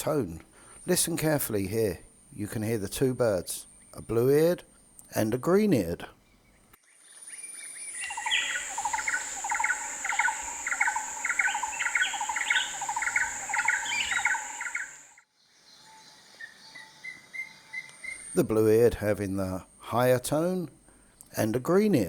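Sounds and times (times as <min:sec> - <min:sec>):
high-pitched barbet calls: 0:07.4 - 0:15.2
deeper barbet calls: 0:08.0 - 0:15.1
high-pitched insect drone: 0:08.0 - 0:15.2.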